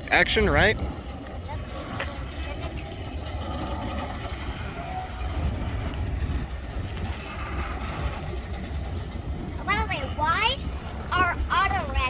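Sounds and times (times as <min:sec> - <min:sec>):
freight train wheels rumbling on rails: 0:00.0 - 0:12.0.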